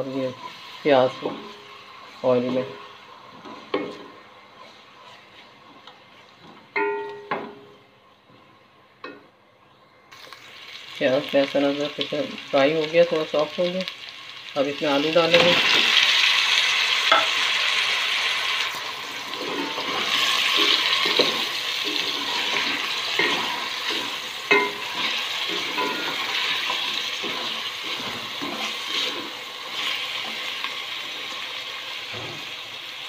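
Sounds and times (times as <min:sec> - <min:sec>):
potatoes sizzling in hot oil: 0:00.0 - 0:04.8, 0:10.2 - 0:33.0
spatula scraping and knocking pot: 0:19.3 - 0:30.4.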